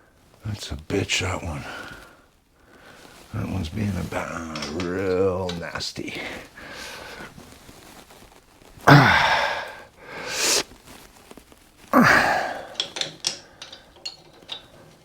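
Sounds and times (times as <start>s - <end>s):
hissing breath: 6.2s - 7.4s, 8.8s - 11.1s, 11.9s - 14.0s
man sighing with exertion: 8.8s - 10.6s, 11.9s - 13.0s.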